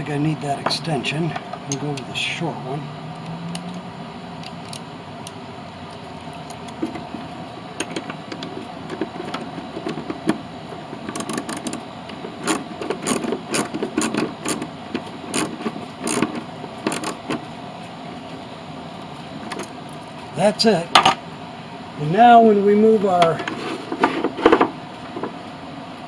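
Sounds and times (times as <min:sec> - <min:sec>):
socket wrench ratchet clicking: 0:15.3 - 0:16.3.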